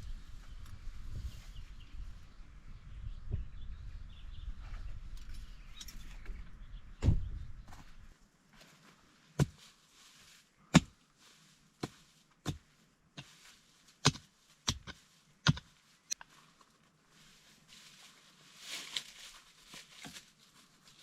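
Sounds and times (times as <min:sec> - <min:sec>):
tool striking wood: 0:14.0 - 0:15.6.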